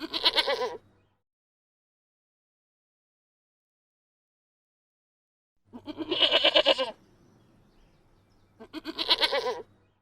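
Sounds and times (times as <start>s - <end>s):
long quavering bleats: 0.0s - 0.8s, 5.7s - 7.0s, 8.6s - 9.7s.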